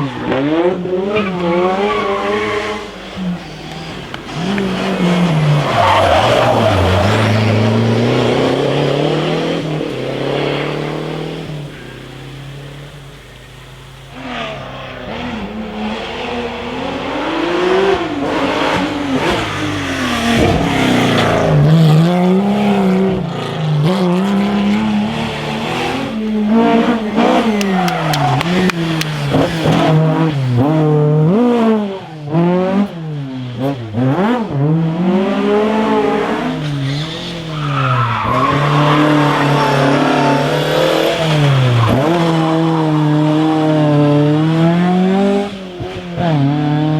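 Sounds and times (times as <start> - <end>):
rally car engine revving: 0.0 - 46.9
tyre squeal: 26.6 - 29.4, 36.4 - 42.6.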